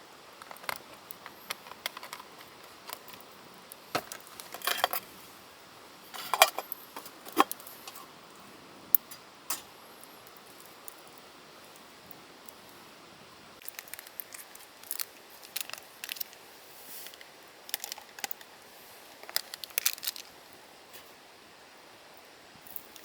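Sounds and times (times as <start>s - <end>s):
faint steady hiss: 0.0s - 23.0s
small hard objects clinking: 0.4s - 3.3s, 3.9s - 5.1s, 13.6s - 16.4s, 17.0s - 18.5s, 19.2s - 20.4s.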